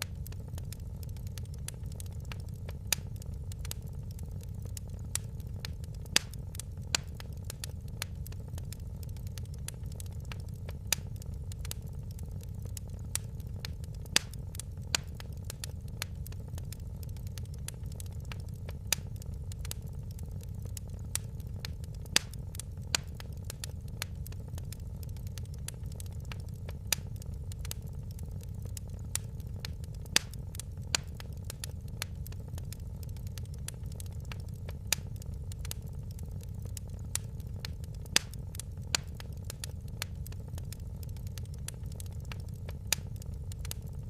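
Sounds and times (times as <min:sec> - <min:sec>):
wood fire crackling: 0:00.0 - 0:44.0.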